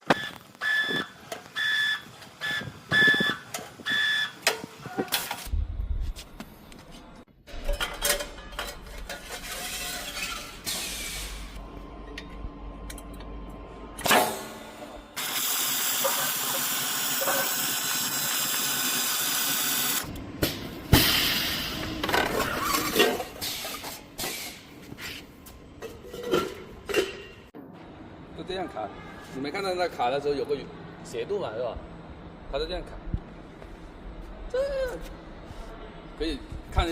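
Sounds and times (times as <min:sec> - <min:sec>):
metal knocks and clanks: 0:07.5 - 0:10.6.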